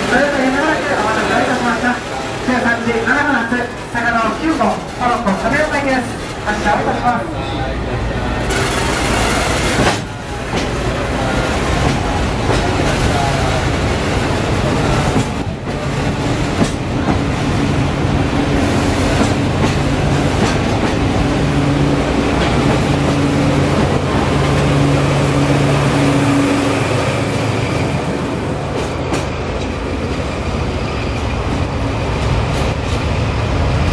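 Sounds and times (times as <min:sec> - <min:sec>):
diesel locomotive running: 0:00.0 - 0:33.9
train wheels clacking on rails: 0:08.4 - 0:30.4.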